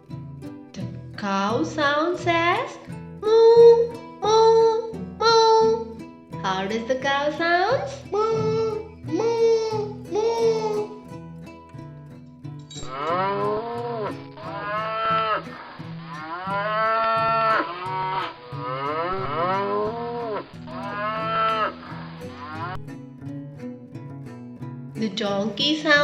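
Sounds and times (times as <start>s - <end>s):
cow mooing: 12.9s - 22.8s.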